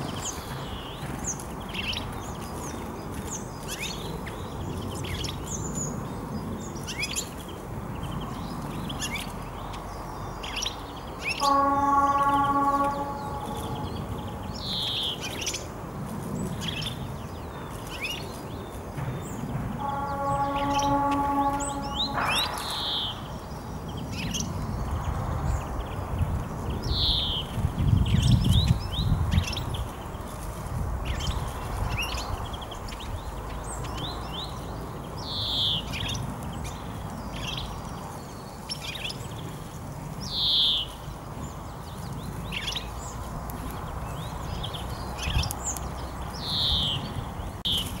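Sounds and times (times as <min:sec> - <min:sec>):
songbird falling call note: 0:11.3 - 0:15.2, 0:19.8 - 0:23.8
low rumble: 0:11.8 - 0:15.4, 0:19.0 - 0:26.7.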